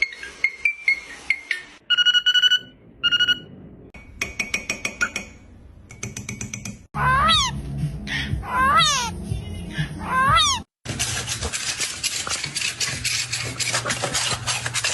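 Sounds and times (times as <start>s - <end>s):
electronic pulsed beeps: 1.9s - 3.5s.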